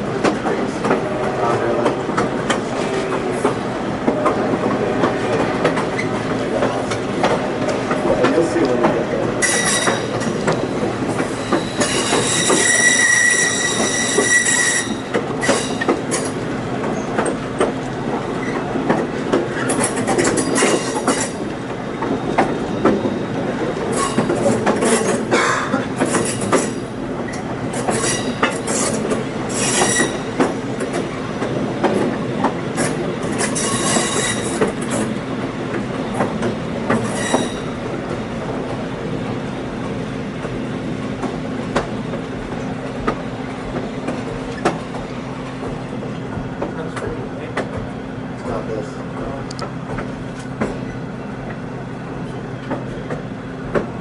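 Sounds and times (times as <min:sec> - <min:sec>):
train rumble and clatter: 0:00.0 - 0:54.0
wheels squealing on rails: 0:00.4 - 0:38.8.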